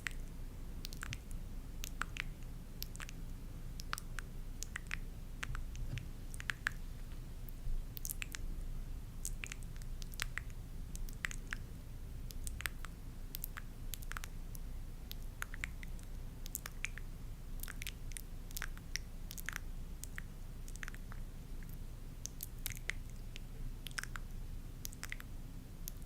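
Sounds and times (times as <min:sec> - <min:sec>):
steady low hum: 0:00.0 - 0:26.0
small clicks and squishy crackles: 0:12.3 - 0:26.0.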